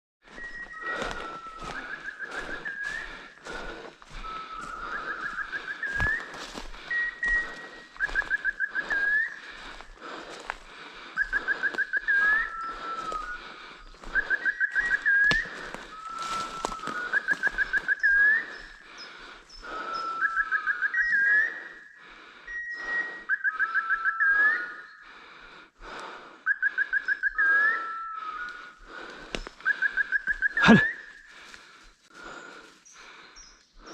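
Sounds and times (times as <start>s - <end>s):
bird-like whistled call: 0.3s - 9.5s, 11.2s - 25.0s, 26.5s - 28.8s, 29.6s - 31.3s
footsteps rustling through brush: 0.3s - 18.7s.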